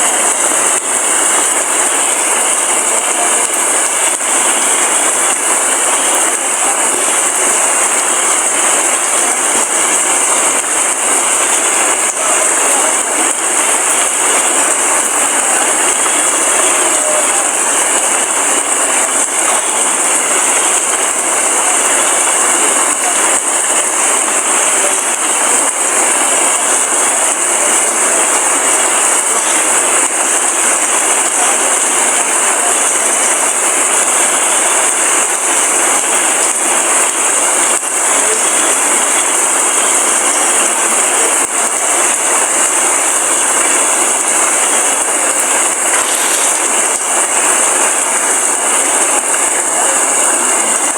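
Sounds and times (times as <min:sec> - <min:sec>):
heavy rain falling: 0:00.0 - 0:50.9.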